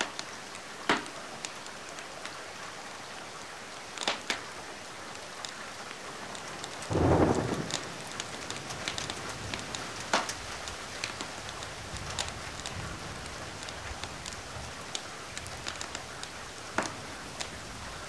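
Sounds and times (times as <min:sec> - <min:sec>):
steady rain hissing: 0:00.0 - 0:18.0
wood fire crackling: 0:03.9 - 0:18.0.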